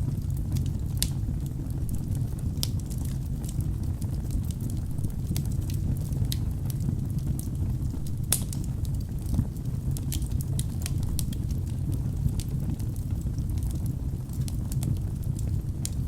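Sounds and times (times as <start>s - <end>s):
fire flames rumbling: 0.0s - 16.0s
logs crackling and popping: 0.1s - 16.0s.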